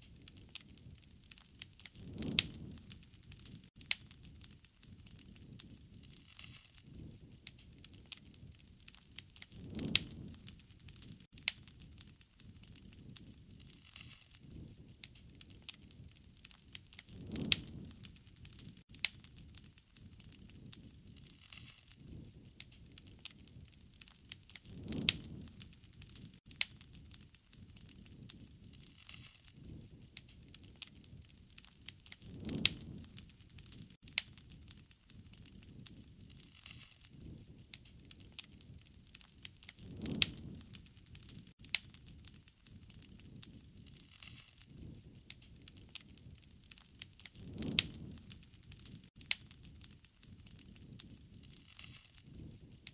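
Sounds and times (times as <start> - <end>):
low rush of flame: 0.0 - 52.9
wood fire crackling and popping: 0.0 - 52.9.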